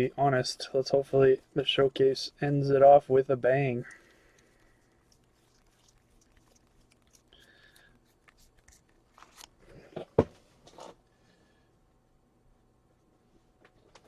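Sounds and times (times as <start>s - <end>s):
packaging crinkling: 4.1s - 9.8s.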